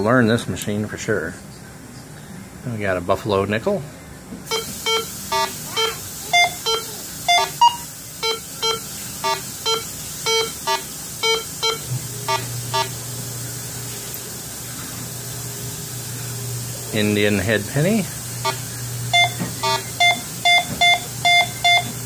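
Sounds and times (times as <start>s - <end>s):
metal detector beeping: 4.5s - 13.0s, 18.4s - 22.0s.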